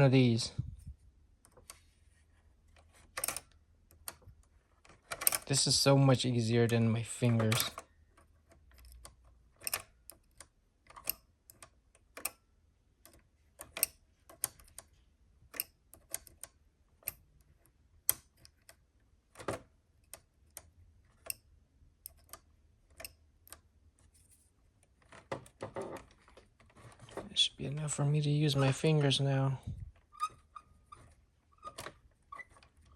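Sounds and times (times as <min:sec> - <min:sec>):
small metal clicks and taps: 0:07.4 - 0:12.4, 0:13.0 - 0:18.8, 0:19.4 - 0:23.7.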